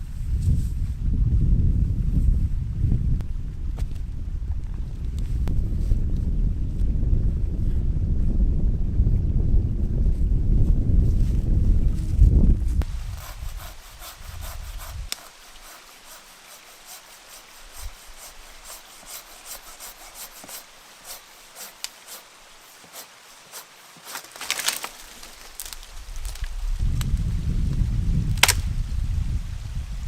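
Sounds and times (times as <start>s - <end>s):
wind rumble on microphone: 0.0s - 15.3s, 25.4s - 30.0s
scraping strokes on wood: 12.8s - 25.8s.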